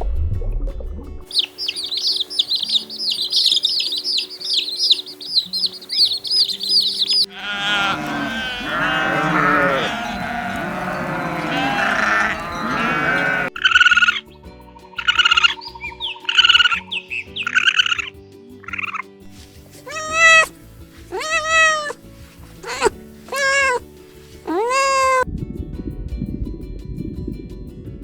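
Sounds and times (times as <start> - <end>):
small birds chirping: 1.3 - 14.2, 14.8 - 25.2
sheep bleating: 5.4 - 13.6, 19.8 - 23.8, 24.4 - 25.2.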